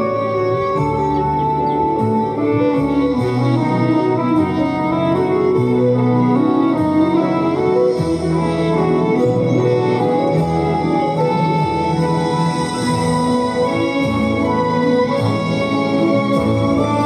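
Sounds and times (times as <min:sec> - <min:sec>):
instrumental cabaret music chords: 0:00.0 - 0:17.0.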